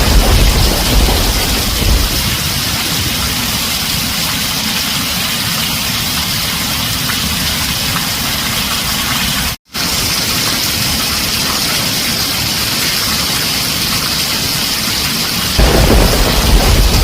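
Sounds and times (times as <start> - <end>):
roll of thunder: 0.0 - 3.8, 15.6 - 17.0
heavy rain drumming on a tin roof: 0.0 - 17.0.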